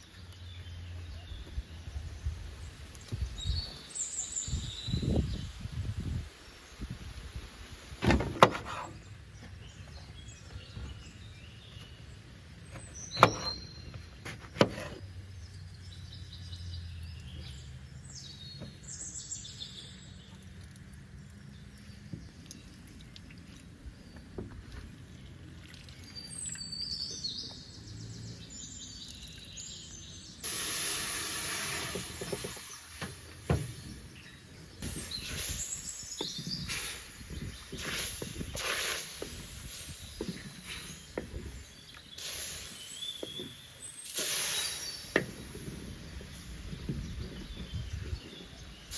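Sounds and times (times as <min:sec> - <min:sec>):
birds chirping: 0:00.0 - 0:05.6, 0:08.0 - 0:30.5, 0:31.1 - 0:48.9
rushing hiss noise: 0:30.4 - 0:34.2, 0:34.8 - 0:41.0, 0:42.1 - 0:43.4, 0:44.0 - 0:46.7.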